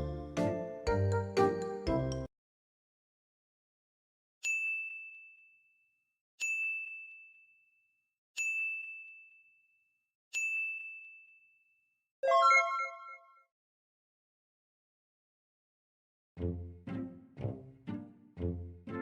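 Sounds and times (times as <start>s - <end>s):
high bell-like dings: 4.5s - 5.8s, 6.4s - 7.7s, 8.4s - 11.7s.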